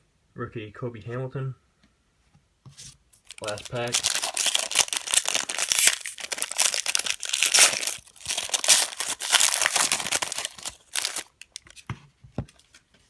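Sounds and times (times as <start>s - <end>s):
wrapper crinkling and tearing: 3.2s - 11.8s.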